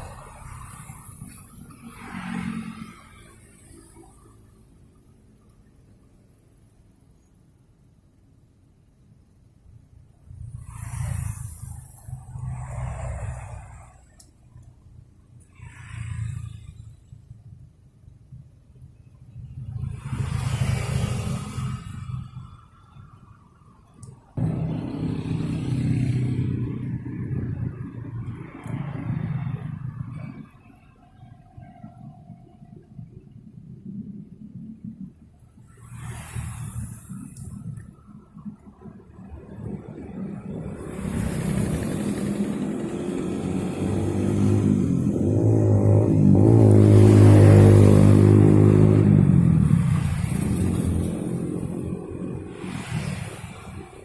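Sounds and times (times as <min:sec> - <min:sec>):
engine running steadily: 0:24.0 - 0:54.0
small petrol engine running: 0:40.8 - 0:44.7.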